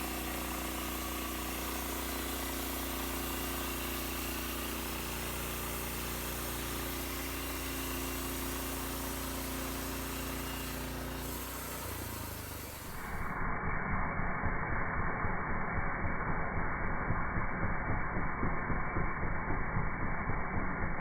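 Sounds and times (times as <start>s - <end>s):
sawmill engine running: 0.0s - 13.5s.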